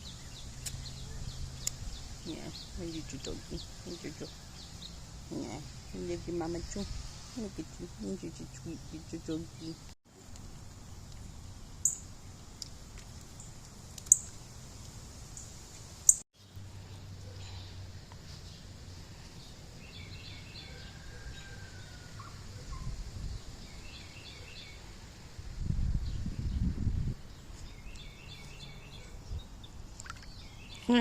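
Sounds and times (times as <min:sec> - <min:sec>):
small birds chirping: 0:00.0 - 0:12.7, 0:26.0 - 0:31.0
wind rumble on microphone: 0:21.4 - 0:23.8, 0:25.3 - 0:28.6.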